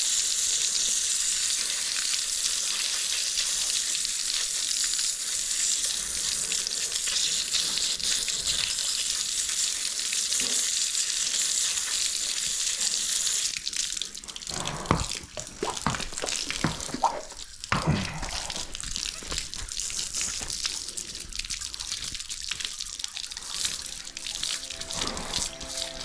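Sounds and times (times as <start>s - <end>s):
water splashing: 14.3s - 26.0s
hose spray hissing: 23.3s - 26.0s.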